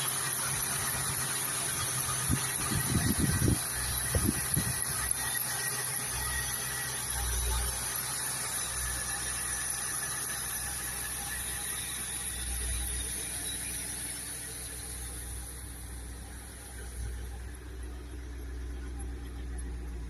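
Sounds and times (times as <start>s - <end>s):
car engine running: 0.0s - 20.0s
steady high whine: 0.0s - 20.0s.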